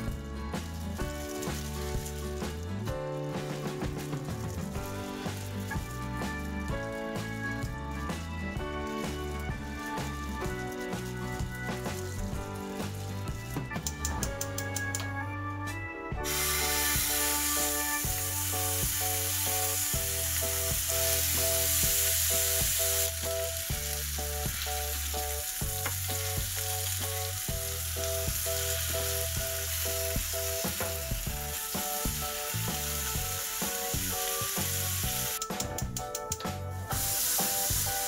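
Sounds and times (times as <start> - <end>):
food sizzling in a hot pan: 0.0 - 2.7, 3.4 - 7.3, 16.2 - 35.4, 36.9 - 38.0
background music: 0.0 - 38.0.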